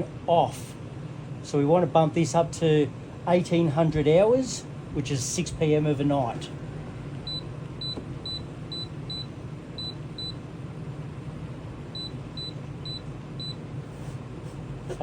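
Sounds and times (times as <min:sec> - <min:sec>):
low hum of running unit: 0:00.0 - 0:15.0
control panel beeps: 0:07.3 - 0:10.4, 0:11.9 - 0:13.6.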